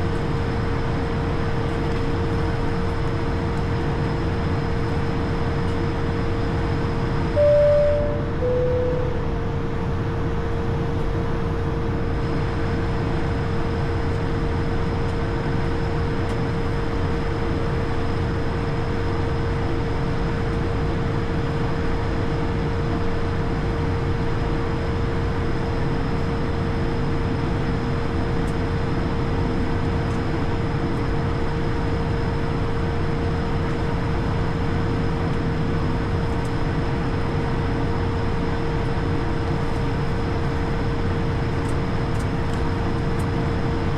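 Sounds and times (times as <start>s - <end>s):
aircraft cockpit roar: 0.0s - 43.9s
mid-pitched hum: 6.0s - 12.1s.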